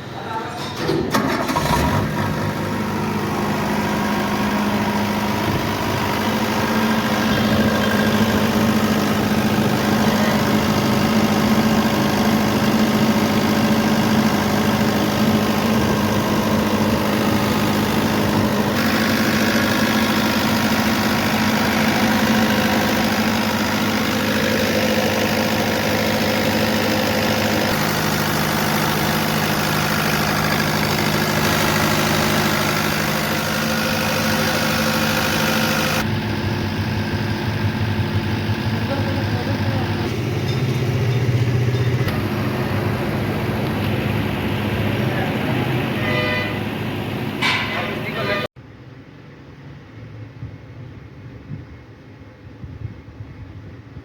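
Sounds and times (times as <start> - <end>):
diesel generator humming: 0.0 - 49.9.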